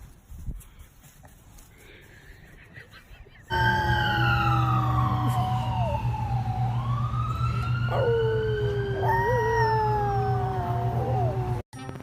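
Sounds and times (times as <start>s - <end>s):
dogs howling: 3.5s - 11.6s
siren wailing: 3.5s - 11.6s
steady low hum: 3.5s - 11.6s.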